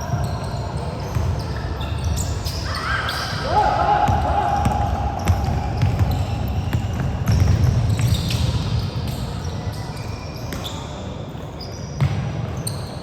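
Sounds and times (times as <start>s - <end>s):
sneakers squeaking: 0.0s - 13.0s
basketball bouncing on court: 4.0s - 9.5s, 12.0s - 12.5s.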